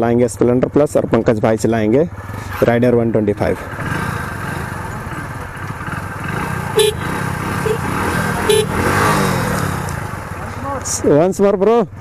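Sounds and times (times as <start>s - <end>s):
motorcycle engine running: 0.5s - 11.3s
motorcycle horn toots: 6.7s - 9.6s.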